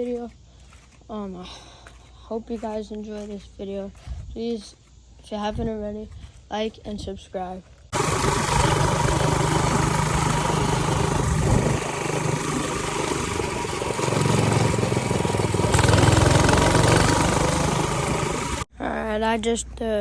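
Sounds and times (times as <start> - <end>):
small engine running under throttle: 7.9 - 18.7.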